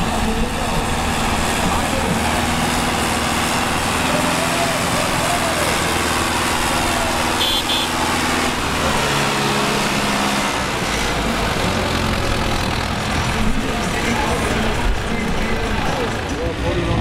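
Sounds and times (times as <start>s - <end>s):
tractor diesel engine running: 0.0s - 17.0s
high double tone: 7.4s - 8.0s.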